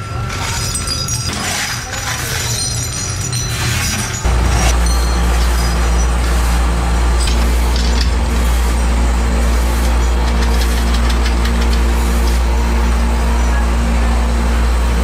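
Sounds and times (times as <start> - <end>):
metal parts clinking: 0.0 - 6.6, 7.2 - 8.5, 9.8 - 12.4
machinery humming: 0.0 - 15.0.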